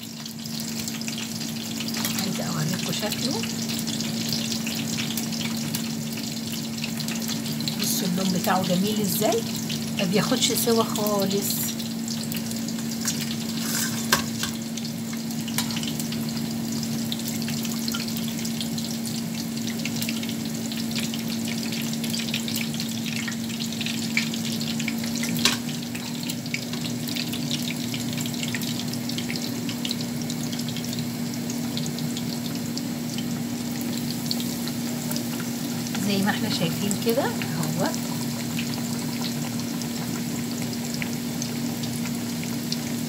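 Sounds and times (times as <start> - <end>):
meat sizzling in hot oil: 0.0 - 43.0
metal tongs knocking on a pan: 13.7 - 14.6.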